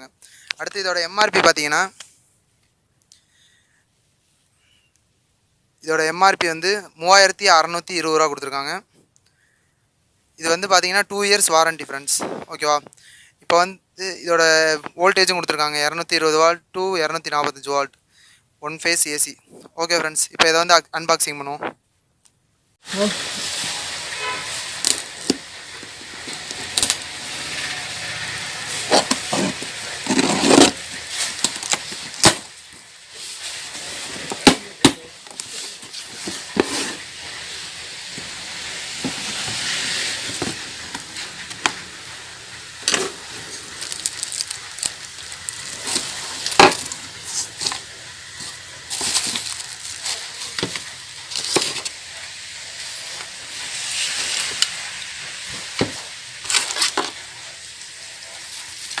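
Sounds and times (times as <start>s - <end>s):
cardboard and packaging rustling: 22.9s - 59.0s.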